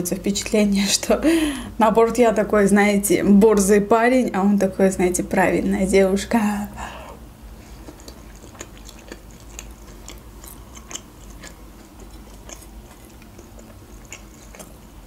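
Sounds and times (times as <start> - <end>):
person chewing: 7.5 - 15.0.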